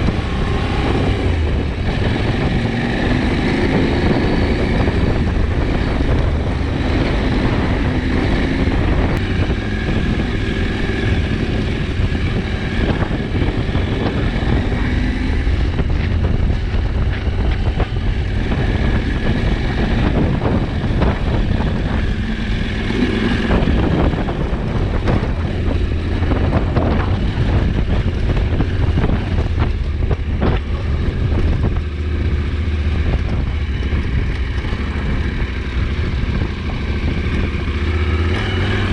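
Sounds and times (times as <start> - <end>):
motorcycle engine revving: 0.0 - 38.9
wind noise on microphone: 0.0 - 38.9.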